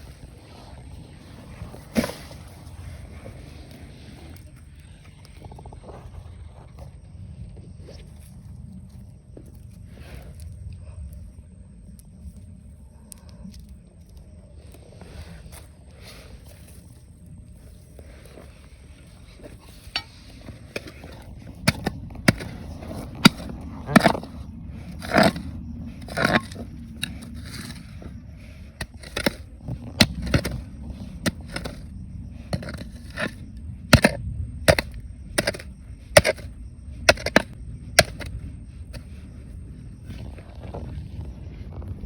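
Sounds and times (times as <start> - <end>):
stones scraping: 0.0 - 7.0, 14.8 - 42.0
stones knocking and clacking: 19.4 - 39.3.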